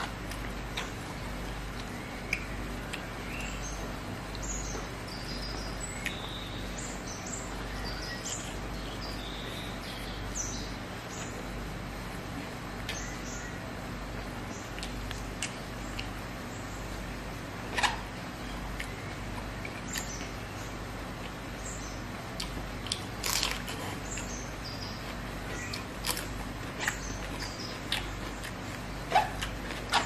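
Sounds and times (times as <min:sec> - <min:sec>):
eating clicks and smacks: 0:00.0 - 0:03.6, 0:14.7 - 0:16.3, 0:22.3 - 0:24.4, 0:25.0 - 0:30.0
small birds chirping: 0:00.0 - 0:30.0
steady low hum: 0:00.0 - 0:30.0.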